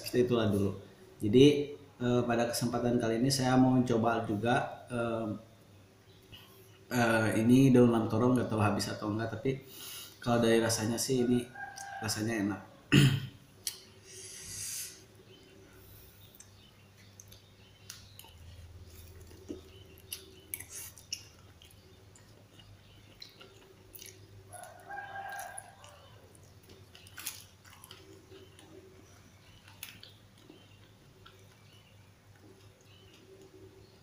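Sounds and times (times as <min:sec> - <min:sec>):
rooster crowing: 0:11.2 - 0:12.5, 0:24.5 - 0:26.3
person chewing leaves: 0:15.8 - 0:34.0.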